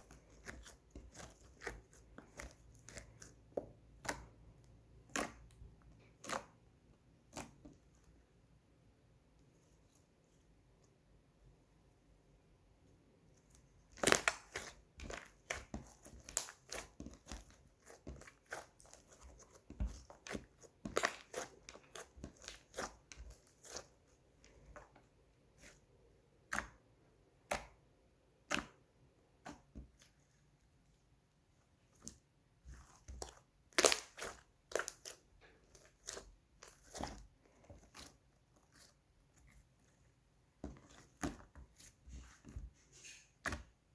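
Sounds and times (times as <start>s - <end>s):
slime clicking and popping: 14.0s - 17.3s, 33.7s - 35.2s.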